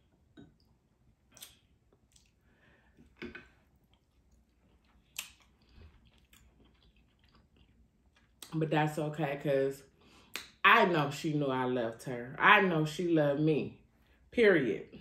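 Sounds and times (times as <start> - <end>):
person chewing: 0.1 - 8.5.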